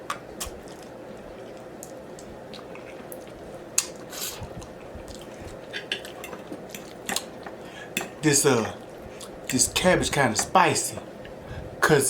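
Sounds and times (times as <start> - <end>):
wet chewing mouth sounds: 0.1 - 8.1.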